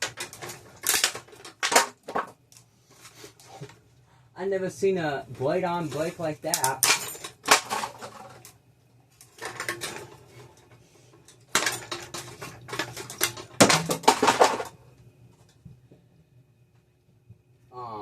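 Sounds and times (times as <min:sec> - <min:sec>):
fan pieces clattering: 0:00.0 - 0:03.8, 0:05.8 - 0:08.6, 0:09.2 - 0:15.6
faint low hum: 0:00.0 - 0:18.0.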